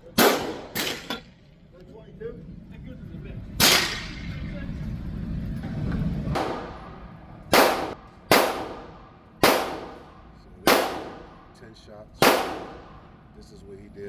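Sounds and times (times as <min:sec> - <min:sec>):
handgun shots: 0:00.2 - 0:01.2, 0:06.4 - 0:06.8, 0:07.5 - 0:10.1, 0:10.7 - 0:11.3, 0:12.2 - 0:13.0.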